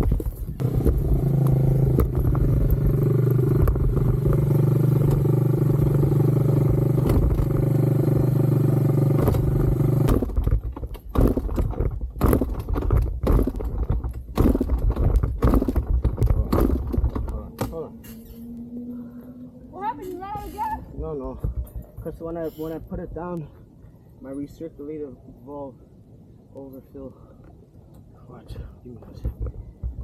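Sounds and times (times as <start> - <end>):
dirt bike engine idling: 0.0 - 10.4
scattered knocks: 9.1 - 17.8.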